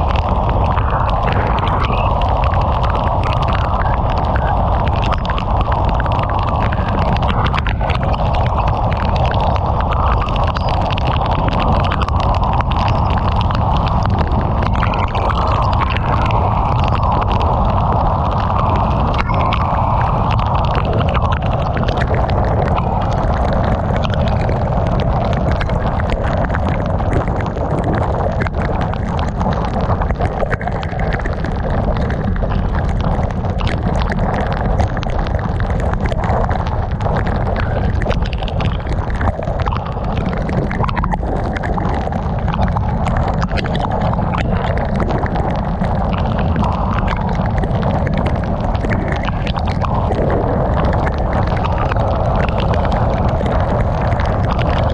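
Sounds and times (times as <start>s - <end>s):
heavy rain patter on car: 0.0s - 54.9s
tyres and wind rumble: 0.0s - 54.9s.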